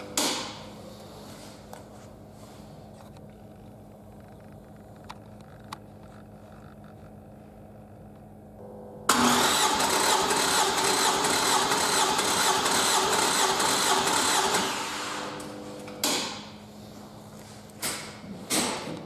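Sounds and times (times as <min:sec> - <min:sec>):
engine cranking by starter: 0:09.1 - 0:16.4.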